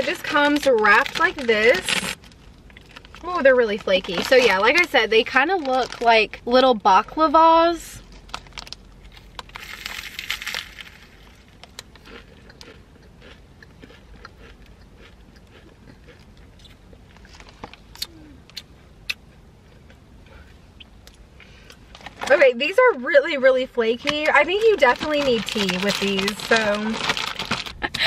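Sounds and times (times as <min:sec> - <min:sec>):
crisp pastry crunching: 0:00.0 - 0:06.4, 0:08.0 - 0:20.0, 0:24.0 - 0:27.9
chewing crunches: 0:08.1 - 0:20.0.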